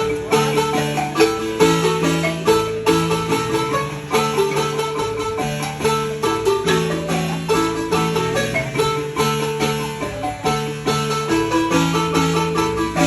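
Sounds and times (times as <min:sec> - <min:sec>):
marimba melody: 0:00.0 - 0:13.0.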